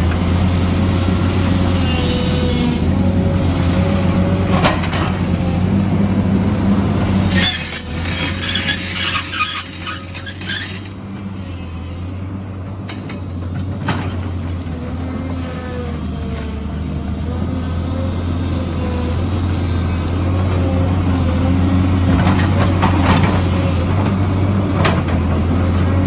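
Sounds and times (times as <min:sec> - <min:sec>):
excavator diesel engine whining: 0:00.0 - 0:26.0.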